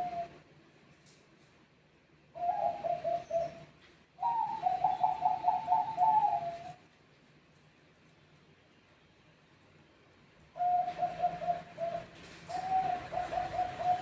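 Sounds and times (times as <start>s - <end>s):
dove cooing: 0.0s - 0.4s, 2.3s - 6.8s, 10.6s - 14.0s.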